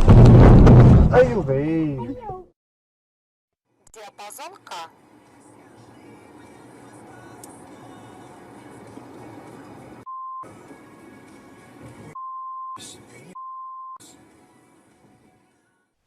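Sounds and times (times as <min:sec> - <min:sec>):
censor bleep tone: 0:12.2 - 0:12.8, 0:13.4 - 0:14.0.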